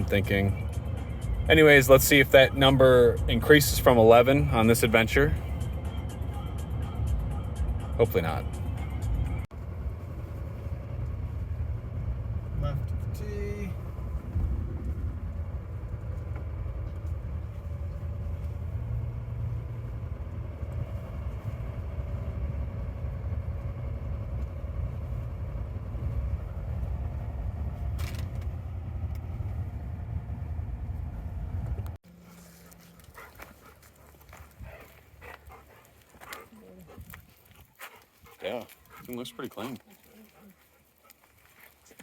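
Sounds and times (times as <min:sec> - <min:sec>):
car interior road and engine noise: 0:00.0 - 0:42.0.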